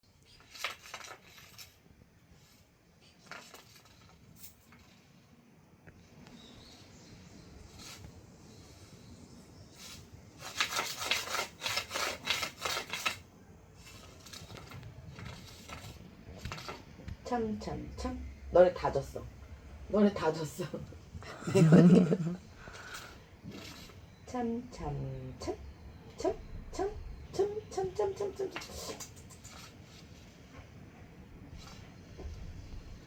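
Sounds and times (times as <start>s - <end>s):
scratching and rubbing on surface: 0.3s - 5.3s, 6.8s - 13.2s, 13.8s - 17.0s, 23.4s - 24.0s, 27.8s - 30.8s, 31.4s - 33.0s.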